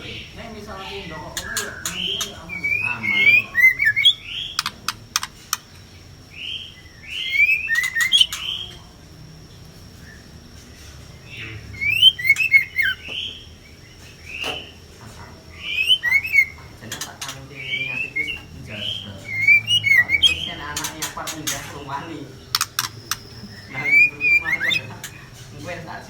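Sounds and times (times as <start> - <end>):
birds chirping and whistling: 0.0 - 26.0
sharp clicks: 4.0 - 5.8, 22.5 - 23.4.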